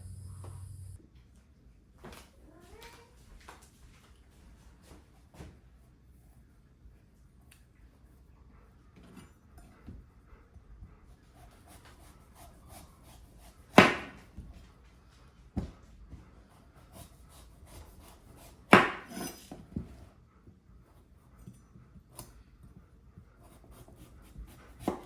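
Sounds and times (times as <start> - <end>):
knife chopping on wooden board: 13.4 - 14.3, 17.7 - 19.5, 23.7 - 25.0.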